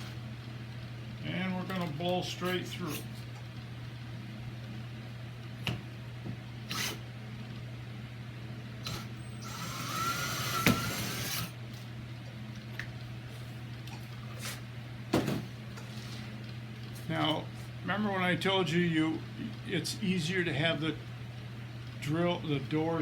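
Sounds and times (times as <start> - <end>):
steady low hum: 0.0 - 23.0
power drill boring through wood: 6.7 - 7.0, 8.8 - 11.5.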